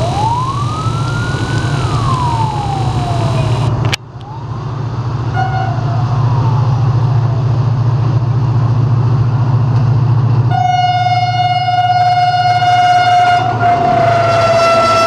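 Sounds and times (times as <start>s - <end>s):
locomotive engine rumble: 0.0s - 15.0s
locomotive horn: 5.3s - 5.9s, 10.5s - 15.0s.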